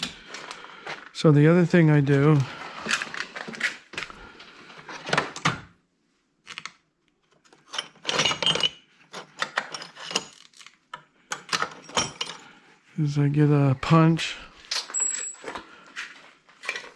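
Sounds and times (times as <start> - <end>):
metal tools clinking: 7.6 - 12.6, 14.6 - 15.6.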